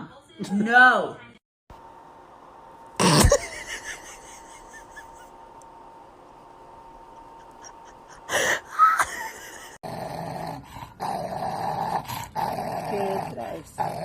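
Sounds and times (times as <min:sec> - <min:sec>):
dog growling: 0:09.8 - 0:14.0.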